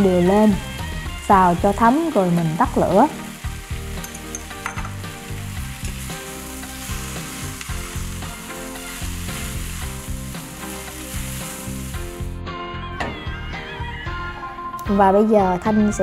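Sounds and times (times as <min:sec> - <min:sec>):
noodles sizzling in a pan: 0:00.0 - 0:12.4.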